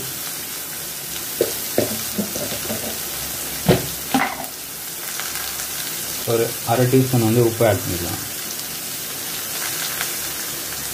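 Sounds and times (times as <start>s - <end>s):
carrots sizzling in a pan: 0.0s - 10.9s
spoon knocking against pan: 1.4s - 3.0s.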